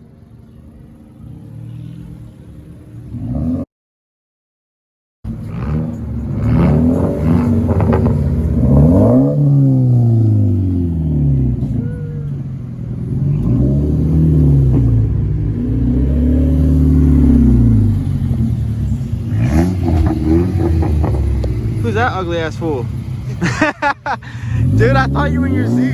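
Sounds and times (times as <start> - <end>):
car engine revving: 5.3 - 25.9.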